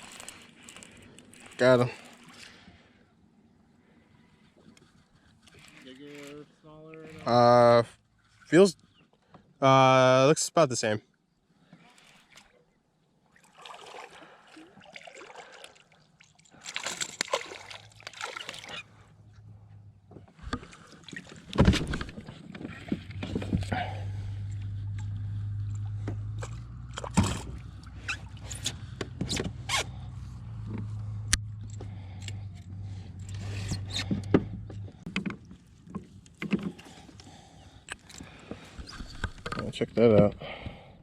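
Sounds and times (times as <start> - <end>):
fishing gear knocks and clicks: 0.0 - 2.4, 30.6 - 40.4
small water splashes: 11.8 - 19.0, 20.6 - 21.6.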